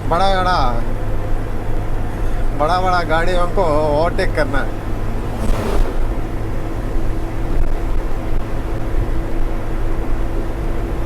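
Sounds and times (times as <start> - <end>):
truck engine droning: 1.2 - 10.4
brief hiss: 4.6 - 7.7.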